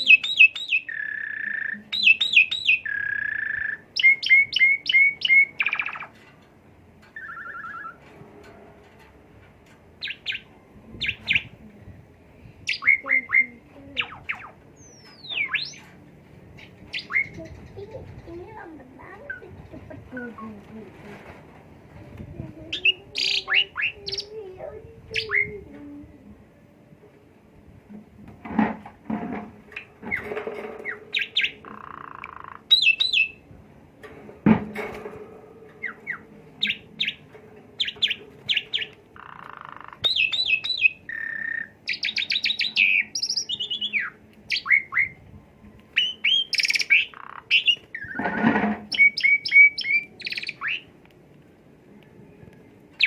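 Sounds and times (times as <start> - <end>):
myna singing: 22.3 - 26.6.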